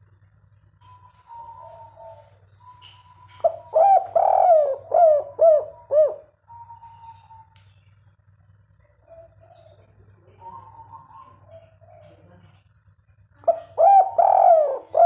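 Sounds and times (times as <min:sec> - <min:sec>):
faint steady hum: 0:00.0 - 0:15.0
dove cooing: 0:00.8 - 0:07.6, 0:08.8 - 0:12.6, 0:13.4 - 0:15.0.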